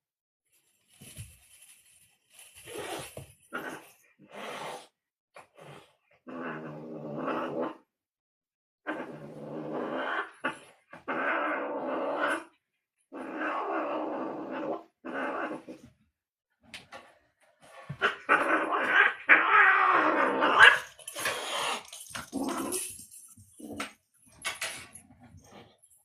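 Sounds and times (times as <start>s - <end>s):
cat growling: 5.6s - 7.9s, 8.8s - 15.8s, 17.7s - 23.0s.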